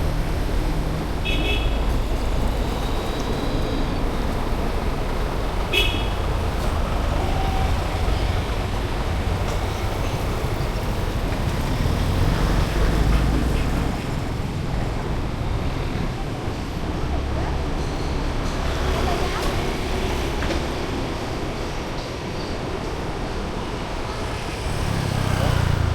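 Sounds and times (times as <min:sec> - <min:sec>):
street traffic rumbling: 0:00.0 - 0:25.9
car horn beep: 0:05.7 - 0:06.2.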